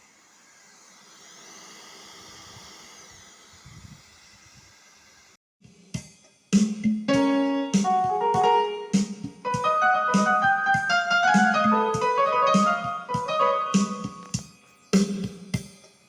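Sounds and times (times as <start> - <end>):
steady drum rhythm: 5.6 - 16.0
keyboard piano melody: 7.1 - 14.5.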